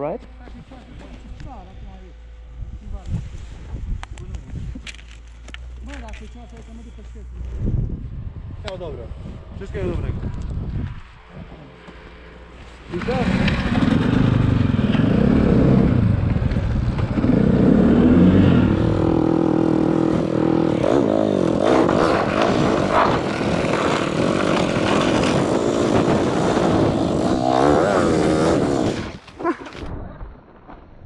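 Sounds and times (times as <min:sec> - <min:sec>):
snowbike engine revving: 0:12.4 - 0:29.6.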